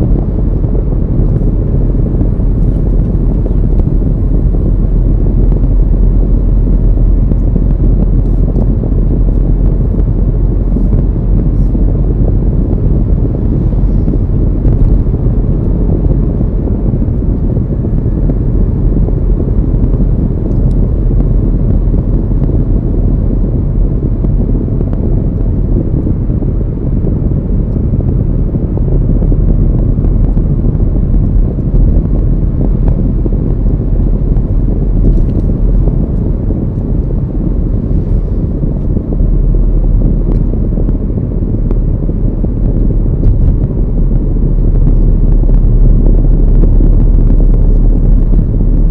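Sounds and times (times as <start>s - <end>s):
car driving along a road: 0.0s - 48.9s.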